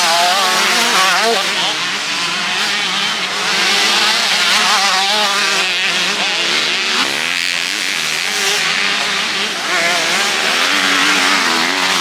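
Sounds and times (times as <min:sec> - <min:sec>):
motocross bikes revving: 0:00.0 - 0:12.0.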